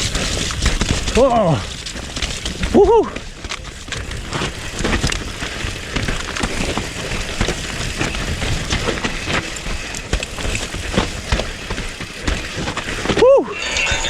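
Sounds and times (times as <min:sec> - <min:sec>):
bike clattering and rattling: 0:00.0 - 0:13.6
bike tyre noise on trail: 0:00.0 - 0:14.0
low rumble: 0:13.4 - 0:14.0.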